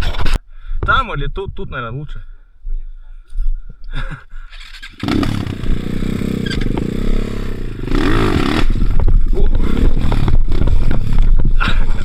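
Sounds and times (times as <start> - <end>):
two-stroke motorcycle engine revving: 4.7 - 11.3.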